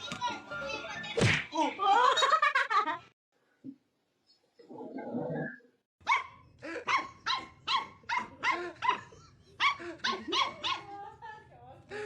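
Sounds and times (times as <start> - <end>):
dog barking rapidly: 6.0 - 10.9.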